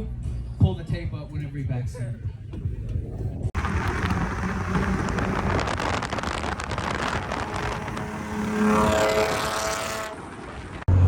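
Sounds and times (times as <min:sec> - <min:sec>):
dense rush of noise: 0:03.2 - 0:11.0
steady engine tone: 0:03.5 - 0:11.0
car engine running hard: 0:03.6 - 0:11.0.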